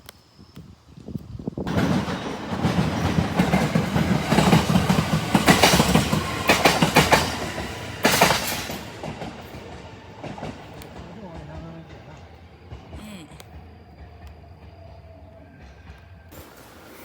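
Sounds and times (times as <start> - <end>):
wheels clattering over rail joints: 1.7 - 13.0
train passing: 1.7 - 17.0.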